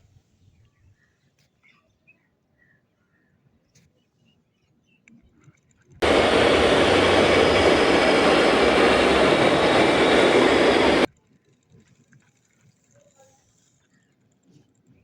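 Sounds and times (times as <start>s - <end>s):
loud rushing noise: 6.0s - 11.1s.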